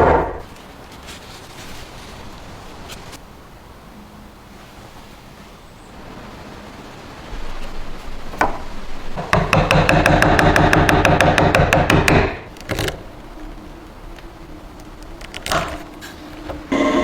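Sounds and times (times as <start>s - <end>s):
hum: 0.0s - 17.0s
rapid mechanical rattle: 8.4s - 17.0s
knock: 9.2s - 12.4s.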